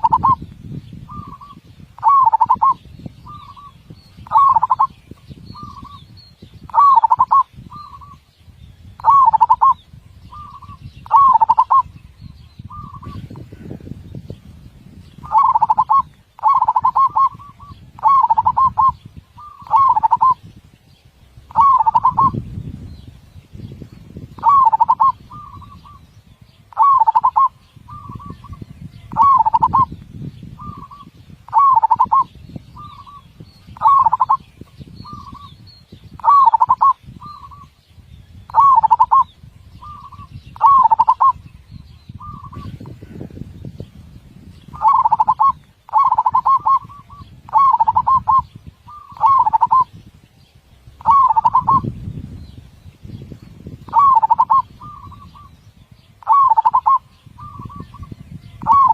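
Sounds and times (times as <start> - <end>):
dove cooing: 0.0 - 0.4, 1.1 - 6.1, 6.7 - 8.2, 9.0 - 12.0, 12.7 - 13.7, 15.2 - 20.4, 21.5 - 22.4, 24.4 - 26.0, 26.7 - 29.9, 30.6 - 33.2, 33.8 - 35.5, 36.2 - 37.7, 38.5 - 41.5, 44.8 - 49.9, 51.0 - 51.9, 53.9 - 55.6, 56.2 - 58.9.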